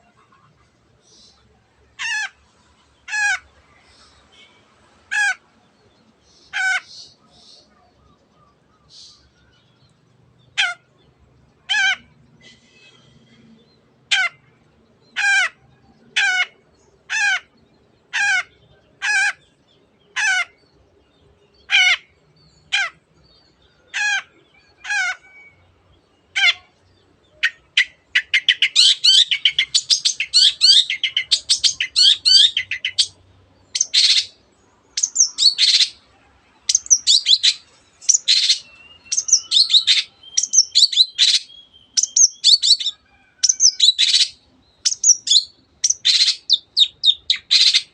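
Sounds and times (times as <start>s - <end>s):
bird chattering song with trills: 27.3s - 36.0s, 36.6s - 47.9s
shrike calling: 27.4s - 47.9s.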